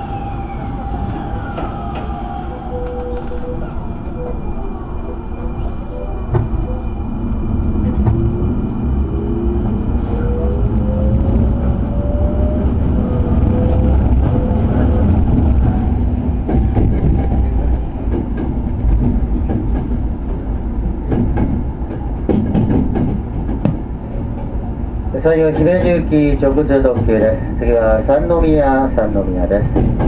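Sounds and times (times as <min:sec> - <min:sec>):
train motor whine: 0:00.0 - 0:18.6
train running rumble: 0:00.0 - 0:30.0.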